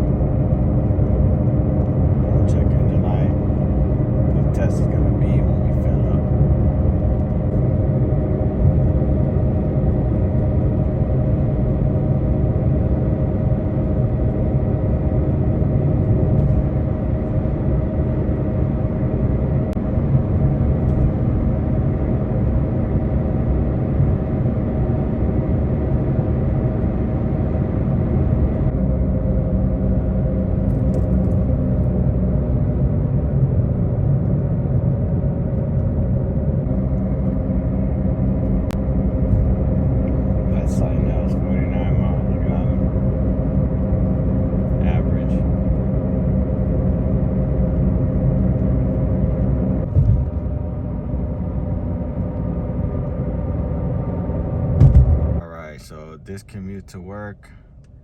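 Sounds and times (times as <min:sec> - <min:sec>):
car interior road noise: 0:00.0 - 0:58.0.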